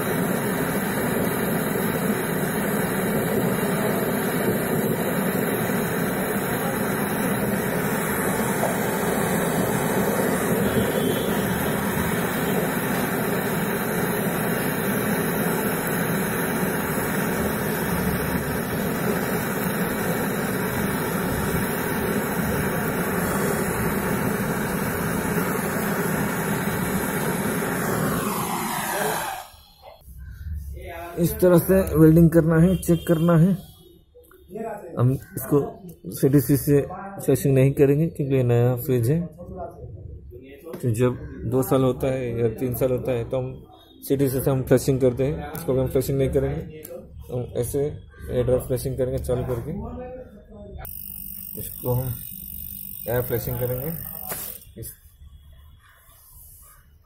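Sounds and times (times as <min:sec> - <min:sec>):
gas torch flame burning: 0:00.0 - 0:30.0, 0:50.8 - 0:55.0.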